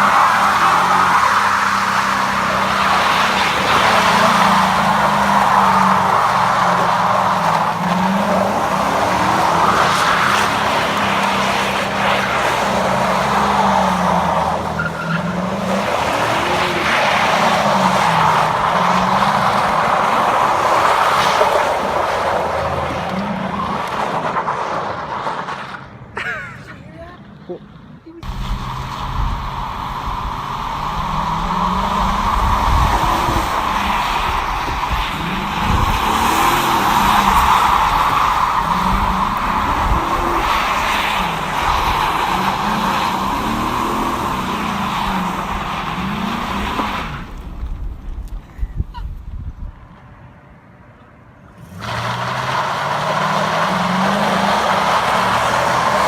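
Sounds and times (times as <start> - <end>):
engine revving high: 0.0 - 24.0, 28.2 - 47.4, 51.6 - 56.0
tires squealing on pavement: 0.0 - 26.1, 27.6 - 48.3, 51.5 - 56.0
tyres screeching: 0.0 - 26.9.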